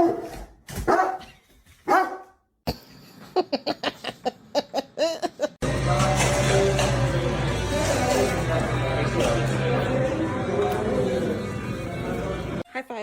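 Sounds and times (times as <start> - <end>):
dog barking: 0.0 - 2.4
music: 5.6 - 12.7
people talking: 7.6 - 13.0.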